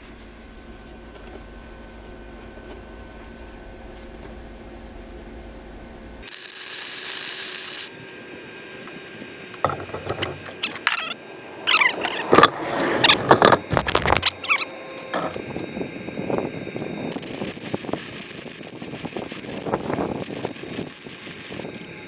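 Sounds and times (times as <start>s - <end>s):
welder arc sizzling: 6.2s - 22.0s.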